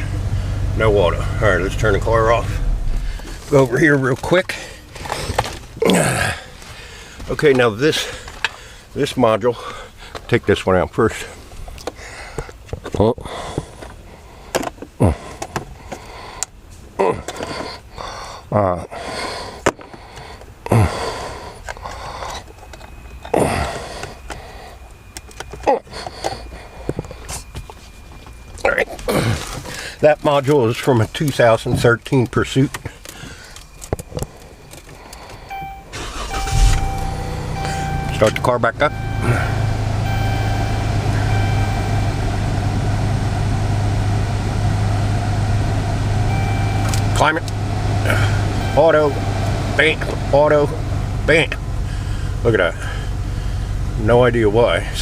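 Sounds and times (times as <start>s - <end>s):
car engine idling: 0.0s - 12.7s, 19.4s - 55.0s
man breathing: 2.6s - 3.5s, 6.2s - 7.3s, 8.0s - 9.0s, 9.6s - 10.3s, 11.3s - 12.6s, 13.2s - 16.6s, 17.3s - 22.6s, 23.3s - 25.1s, 25.9s - 27.5s, 29.1s - 30.0s, 32.8s - 35.7s, 48.1s - 48.6s, 51.8s - 53.8s.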